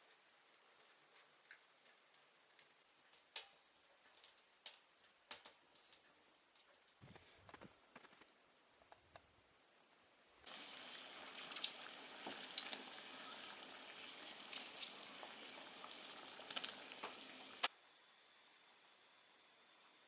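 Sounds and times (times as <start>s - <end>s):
food sizzling in a pan: 10.4s - 17.7s
oil popping and spitting: 10.4s - 17.7s.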